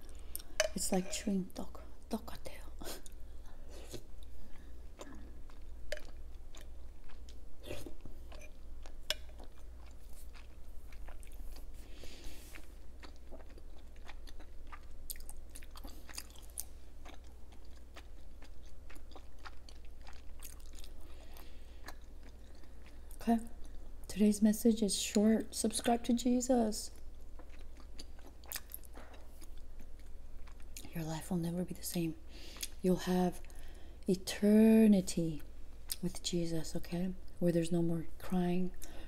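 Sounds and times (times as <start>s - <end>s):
chewing with wet mouth clicks: 3.9s - 11.7s, 12.5s - 23.9s, 26.9s - 30.9s.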